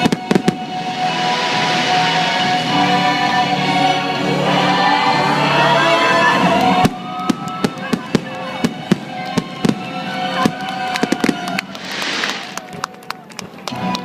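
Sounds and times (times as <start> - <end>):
fireworks popping and cracking: 0.0 - 1.8, 6.8 - 13.7
firework hissing burst: 0.0 - 3.8, 11.4 - 13.0
show music: 0.0 - 14.0.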